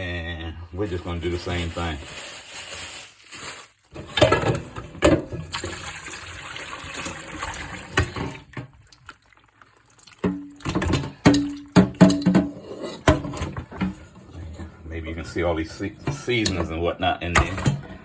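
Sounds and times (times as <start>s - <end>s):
brine pouring and splashing: 1.1s - 12.3s
sharp knocks and clatter: 10.3s - 14.1s.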